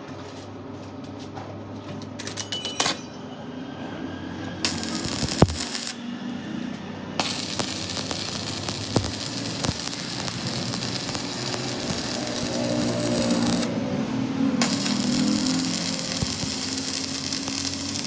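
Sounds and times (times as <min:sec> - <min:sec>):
crackling hiss of metalworking: 0:04.3 - 0:18.0
sharp metallic clicks: 0:07.2 - 0:13.7.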